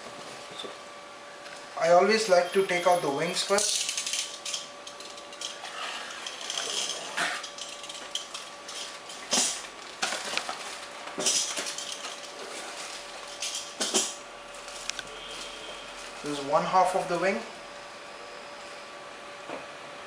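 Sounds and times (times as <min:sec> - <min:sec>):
packaging rustling and crinkling: 0:05.1 - 0:13.8, 0:14.5 - 0:16.3.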